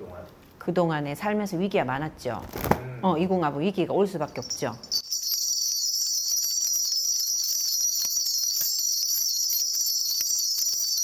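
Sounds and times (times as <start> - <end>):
small metal bells jingling: 3.7 - 11.0.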